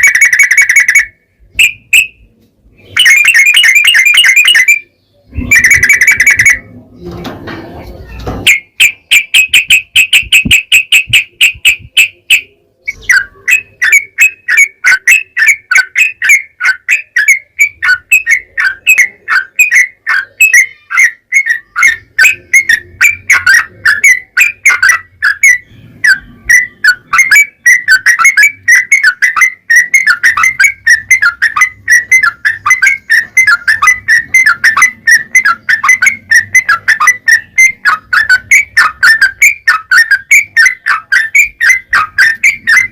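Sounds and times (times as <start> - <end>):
bird singing chirping notes: 0.0 - 42.9.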